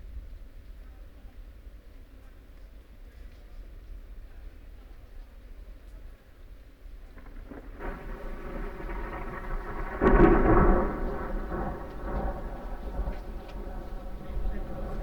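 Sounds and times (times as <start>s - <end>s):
rain: 5.7s - 15.0s
thunder rumbling: 7.0s - 15.0s.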